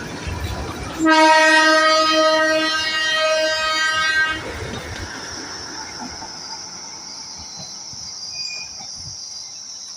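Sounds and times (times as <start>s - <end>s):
train rumble: 0.0s - 9.9s
train horn: 1.0s - 4.5s.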